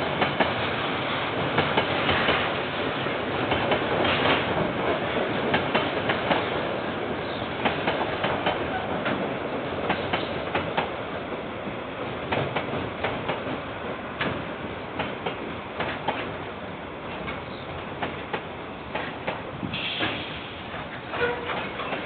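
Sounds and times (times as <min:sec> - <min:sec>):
train rumble: 0:00.0 - 0:22.0
train wheels clacking: 0:03.4 - 0:06.6, 0:07.4 - 0:11.0, 0:17.1 - 0:22.0.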